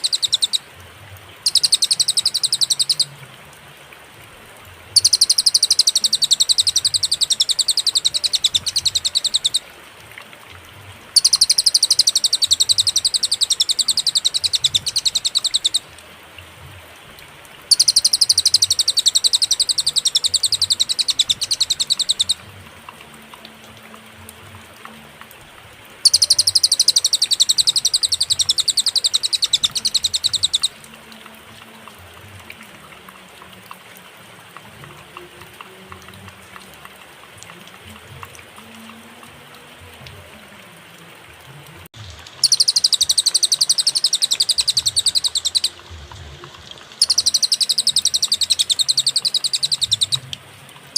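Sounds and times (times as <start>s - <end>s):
songbird rattling trill: 0.0s - 0.6s, 1.4s - 3.1s, 5.0s - 9.7s, 11.2s - 15.9s, 17.7s - 22.4s, 26.0s - 30.8s, 42.4s - 45.9s, 47.0s - 50.2s.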